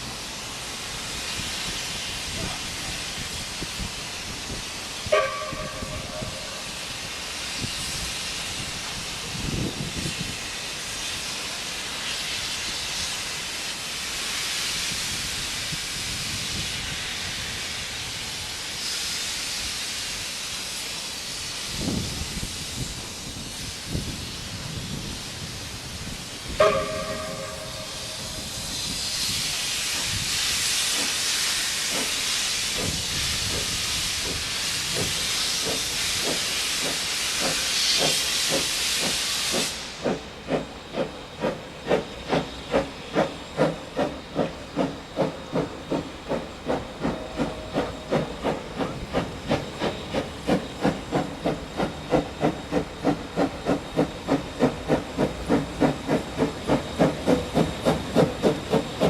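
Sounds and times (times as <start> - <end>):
loud hiss of steam: 0.0 - 59.0
steam locomotive whistle: 5.0 - 6.9, 26.5 - 40.2, 41.9 - 59.0.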